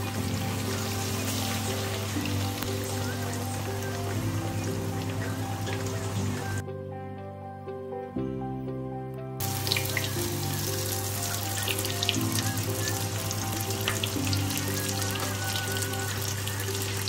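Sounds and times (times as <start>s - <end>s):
meat frying in hot oil: 0.0s - 6.2s, 9.4s - 17.0s
soft background music: 0.0s - 17.0s.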